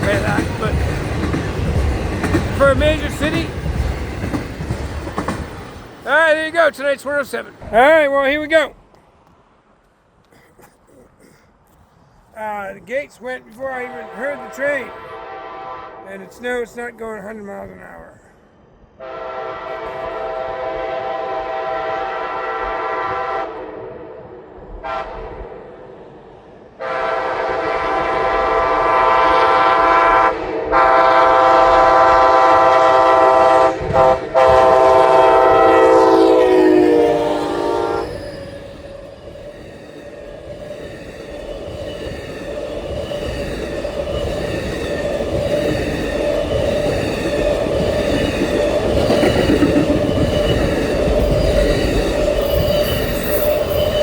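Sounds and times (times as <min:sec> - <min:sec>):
train cars rumbling and clattering: 0:00.0 - 0:09.5, 0:10.4 - 0:23.4, 0:24.2 - 0:54.0
locomotive air horn blasts: 0:13.8 - 0:16.2, 0:19.0 - 0:24.0, 0:24.8 - 0:25.6, 0:26.8 - 0:38.2.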